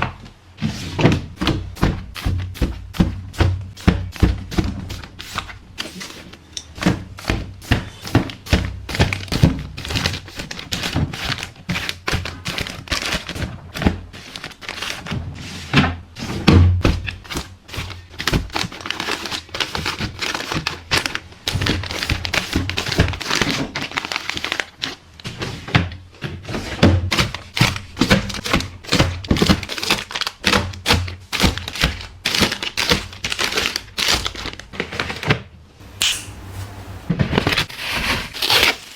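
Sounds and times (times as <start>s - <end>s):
plastic crinkling: 17.8s - 25.0s, 29.3s - 34.8s, 36.2s - 38.9s.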